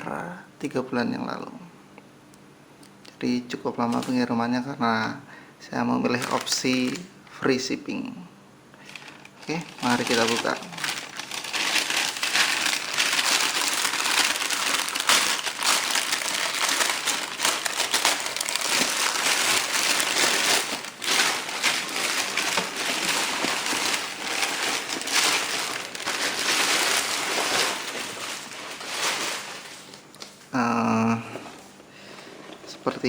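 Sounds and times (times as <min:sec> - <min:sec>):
package wrapping crinkling: 0:03.8 - 0:04.3, 0:06.1 - 0:07.1, 0:08.8 - 0:30.7.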